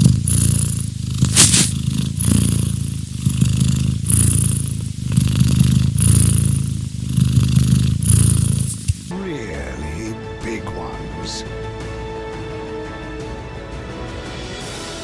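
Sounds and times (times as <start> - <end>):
cat purring loudly: 0.0 - 9.1.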